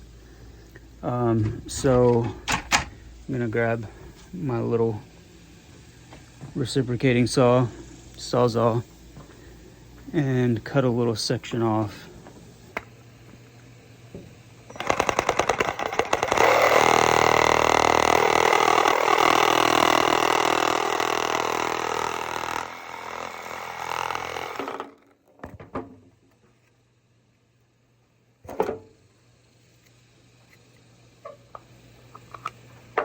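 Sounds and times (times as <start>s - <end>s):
reciprocating saw cutting pipe: 14.7s - 25.1s.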